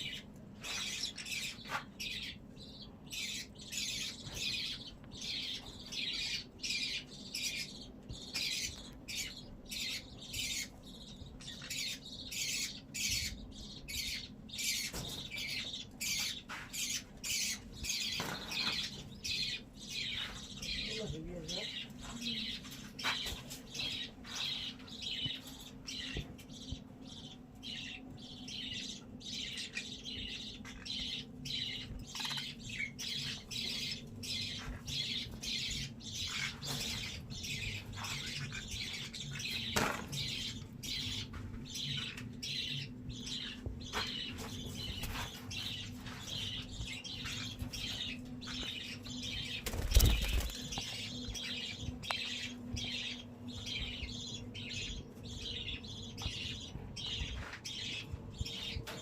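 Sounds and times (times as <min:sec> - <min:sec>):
budgerigars chattering and chirping: 0:00.0 - 0:59.0
steady low hum: 0:00.0 - 0:59.0
wing flutters: 0:49.6 - 0:50.8.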